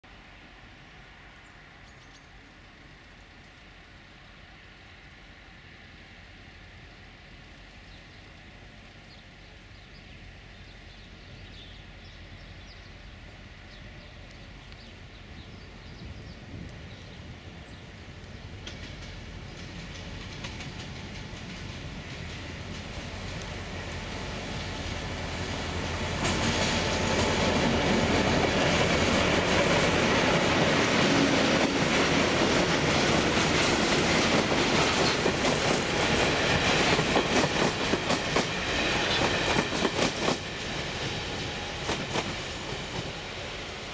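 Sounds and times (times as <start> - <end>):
diesel locomotive engine: 0.0 - 43.9
train wheels clacking on rail joints: 18.5 - 23.8, 26.0 - 43.2.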